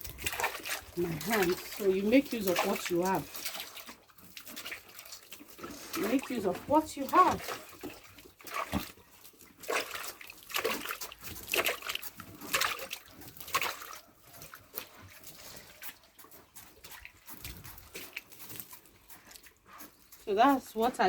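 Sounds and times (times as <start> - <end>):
water splashing onto floor: 0.0 - 9.0, 9.6 - 16.2.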